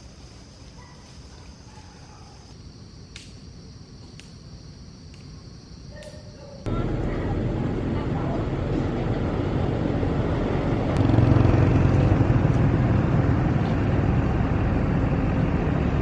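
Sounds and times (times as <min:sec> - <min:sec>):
vehicle engine rumbling: 0:06.7 - 0:16.0.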